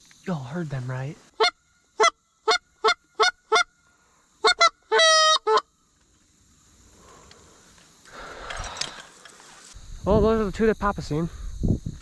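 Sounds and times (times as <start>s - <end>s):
goose honking: 4.4s - 5.7s.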